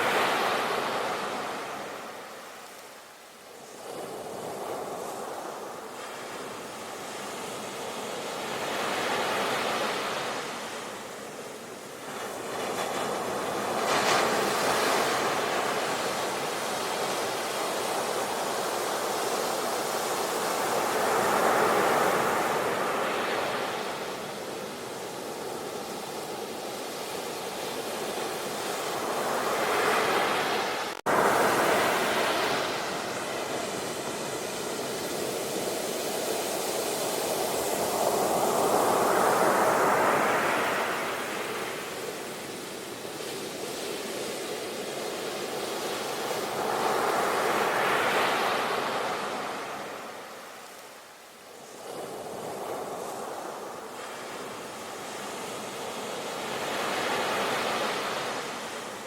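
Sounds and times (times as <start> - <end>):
ocean waves breaking: 26.8 - 42.6.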